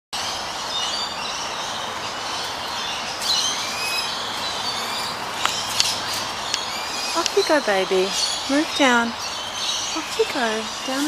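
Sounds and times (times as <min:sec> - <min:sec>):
small birds chirping: 0:00.2 - 0:11.0
steady background noise: 0:00.2 - 0:11.0
sharp clicks: 0:07.2 - 0:07.4.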